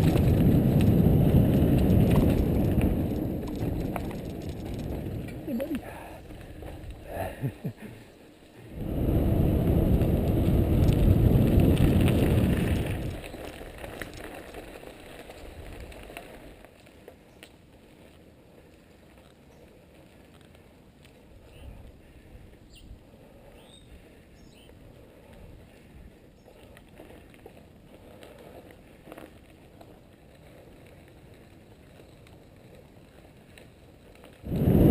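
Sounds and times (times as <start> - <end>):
light clicks and patter: 0.0 - 7.1, 11.7 - 22.0, 25.0 - 34.5
wind rushing on microphone: 0.0 - 7.1, 8.7 - 13.4, 34.4 - 34.9
mountain bike tyres rolling on dirt: 0.0 - 34.9.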